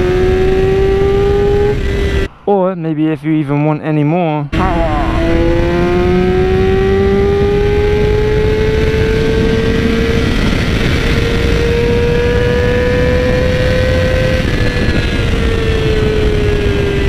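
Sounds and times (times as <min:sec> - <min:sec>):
motorcycle engine accelerating: 0:00.0 - 0:02.3, 0:04.6 - 0:17.0.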